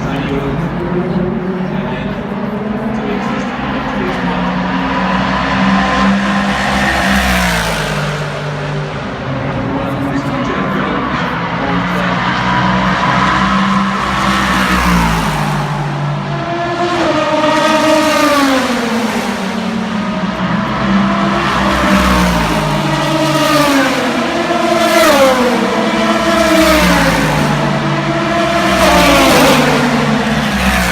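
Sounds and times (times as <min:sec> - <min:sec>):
race cars passing at speed: 0:00.0 - 0:30.9.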